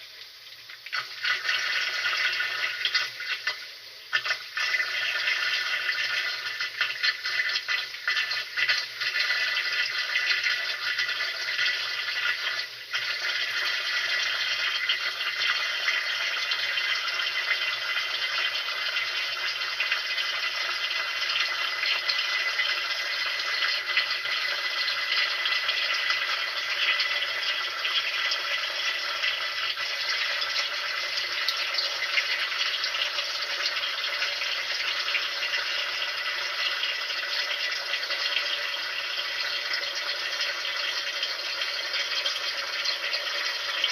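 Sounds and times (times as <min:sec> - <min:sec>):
water running: 0:00.0 - 0:43.9.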